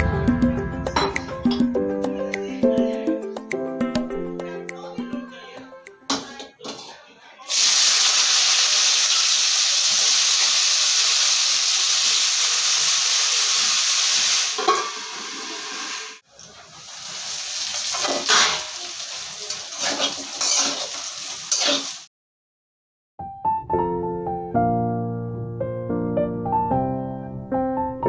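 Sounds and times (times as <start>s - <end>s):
potatoes sizzling in hot oil: 7.5s - 22.1s
metal lid clanking: 14.6s - 15.0s
metal spatula scraping pan: 17.9s - 18.8s, 19.7s - 21.9s.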